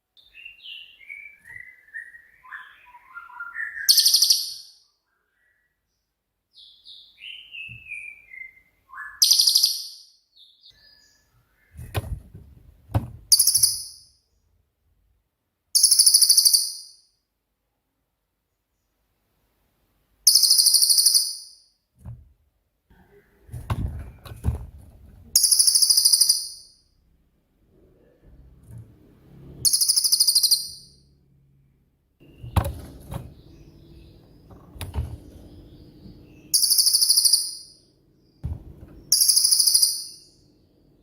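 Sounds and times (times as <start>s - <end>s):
knocks: 11.8s - 13.8s, 23.5s - 25.3s, 32.3s - 33.4s, 34.4s - 36.2s, 38.4s - 39.1s
bird high trilled bursts: 29.6s - 31.0s, 36.5s - 37.7s.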